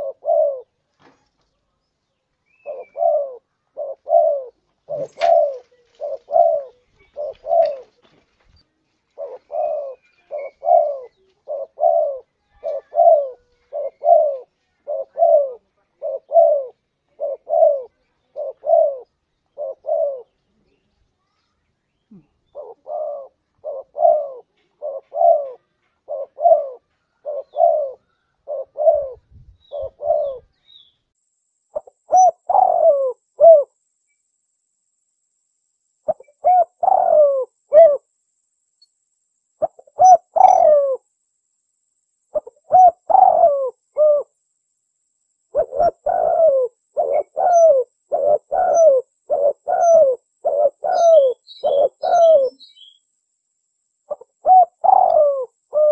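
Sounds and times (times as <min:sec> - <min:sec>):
dove cooing: 0:00.0 - 0:00.8, 0:02.5 - 0:08.2, 0:09.1 - 0:20.6, 0:22.1 - 0:30.6, 0:31.7 - 0:33.8, 0:36.0 - 0:38.1, 0:39.6 - 0:41.1, 0:42.3 - 0:44.4, 0:45.5 - 0:53.0, 0:54.1 - 0:55.9.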